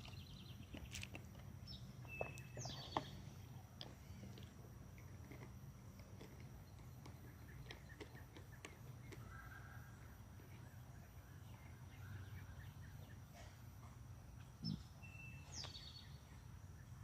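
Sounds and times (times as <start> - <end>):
songbird chirps and calls: 0.0 - 3.6, 6.3 - 13.6, 14.4 - 17.0.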